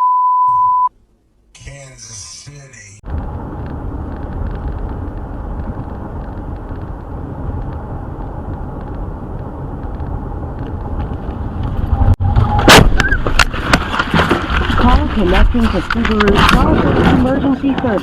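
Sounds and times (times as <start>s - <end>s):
car road and engine noise: 1.0s - 18.0s.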